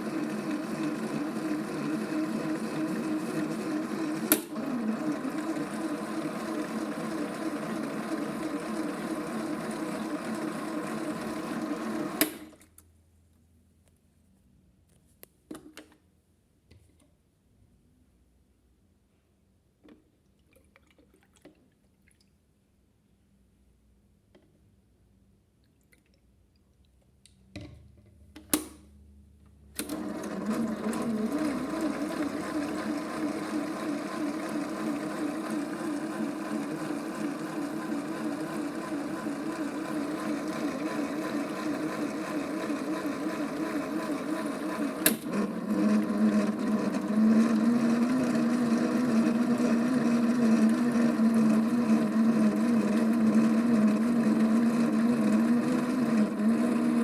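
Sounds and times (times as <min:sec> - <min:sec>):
toy washing machine motor humming: 0:00.0 - 0:12.2, 0:29.8 - 0:57.0.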